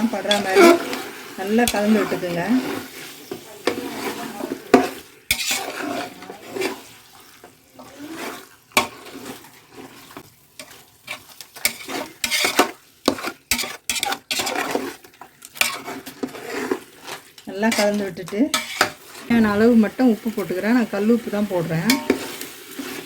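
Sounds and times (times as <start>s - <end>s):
spoon scraping and clinking pot: 0.0s - 19.7s, 20.3s - 23.0s.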